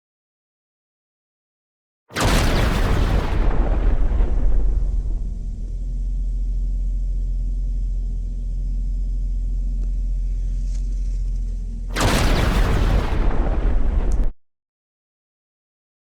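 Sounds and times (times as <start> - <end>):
car engine rumbling: 3.8 - 12.0.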